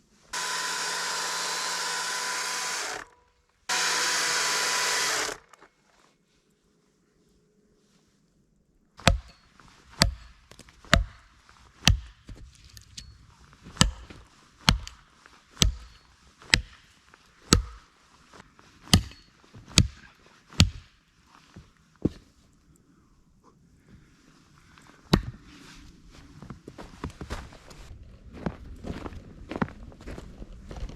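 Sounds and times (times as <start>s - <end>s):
axe chopping: 9.0s - 9.4s, 10.0s - 12.4s, 13.7s - 15.0s, 15.6s - 16.9s, 17.5s - 17.9s, 18.9s - 20.0s, 20.6s - 21.0s, 25.1s - 25.4s.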